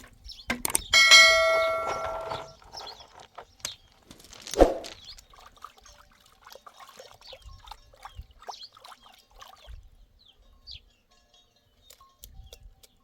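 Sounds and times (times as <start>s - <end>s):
rustling: 1.0s - 5.2s.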